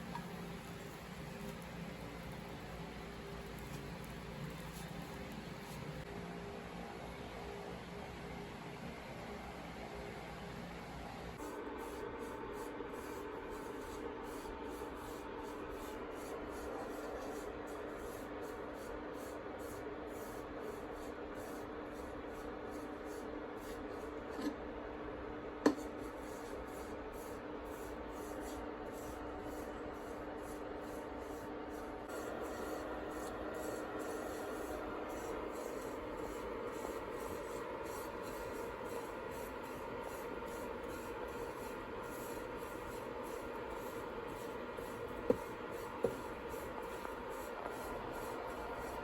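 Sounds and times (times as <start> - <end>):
steady hum: 25.2 - 49.0.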